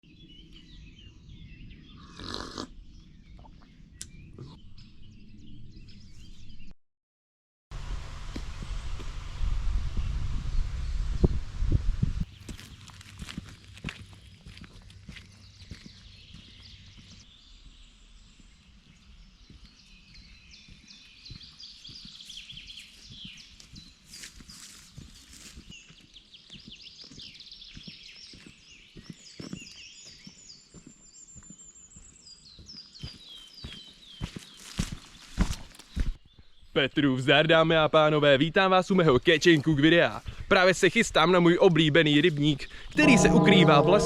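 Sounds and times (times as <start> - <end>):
small birds chirping: 0.1 - 6.7, 12.3 - 43.0
songbirds singing: 0.1 - 6.7, 12.3 - 44.0
steady low rumble: 7.8 - 17.2.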